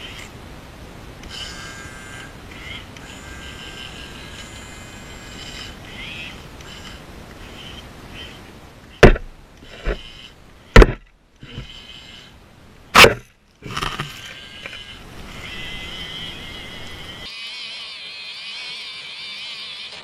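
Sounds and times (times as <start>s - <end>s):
sharp knocks: 9.0s - 10.0s, 10.8s - 11.7s.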